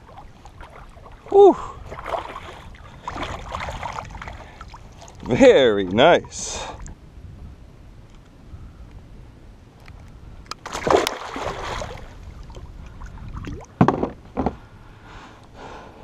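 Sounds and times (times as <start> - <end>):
water splashing on kayak: 0.0 - 7.0, 10.6 - 14.2
sharp knocks: 13.8 - 14.6.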